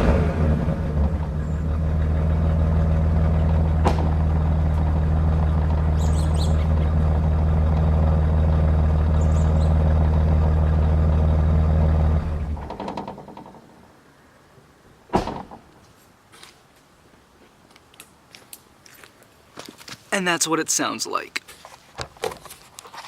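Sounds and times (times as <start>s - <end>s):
car exhaust idling: 0.0s - 13.3s.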